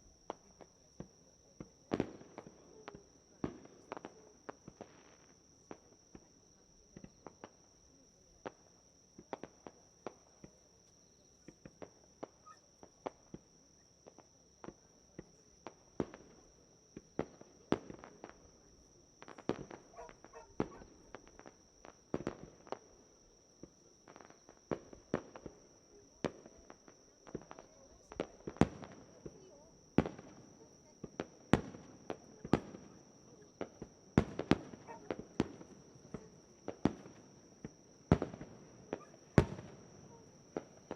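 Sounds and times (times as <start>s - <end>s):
fireworks cracking and popping: 14.1s - 18.6s, 19.2s - 40.9s.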